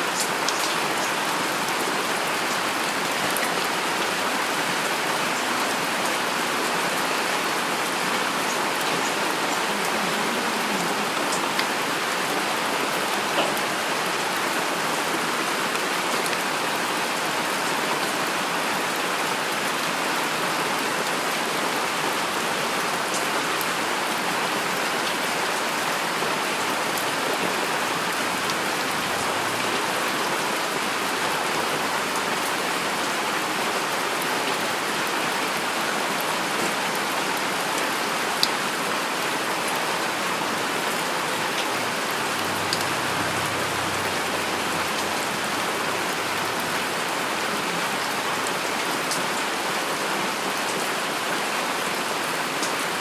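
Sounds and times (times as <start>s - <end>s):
heavy rain falling: 0.0s - 53.0s.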